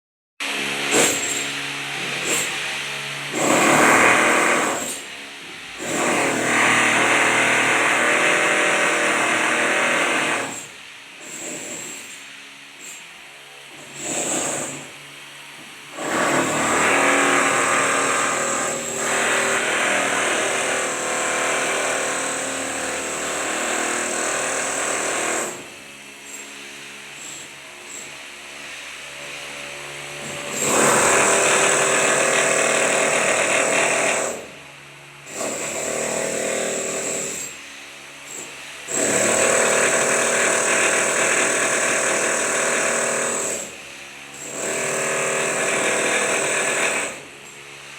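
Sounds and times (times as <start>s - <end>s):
handheld power tool running: 0.5s - 5.1s, 15.9s - 28.4s, 35.2s - 47.9s.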